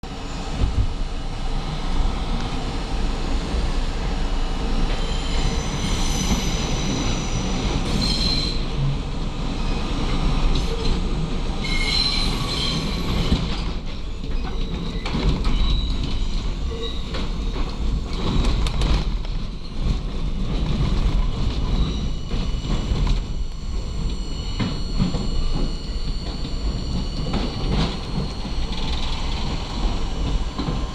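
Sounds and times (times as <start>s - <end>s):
subway train wheels rumbling: 0.0s - 30.9s
high-pitched wheel squeal: 5.0s - 8.7s, 11.6s - 13.3s, 14.2s - 17.5s, 21.2s - 30.9s.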